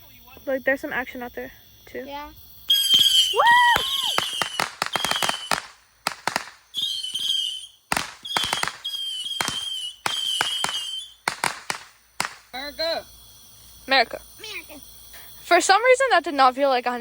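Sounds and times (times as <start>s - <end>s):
firework whistles: 2.3s - 15.7s
firework cracks and bangs: 2.7s - 12.6s.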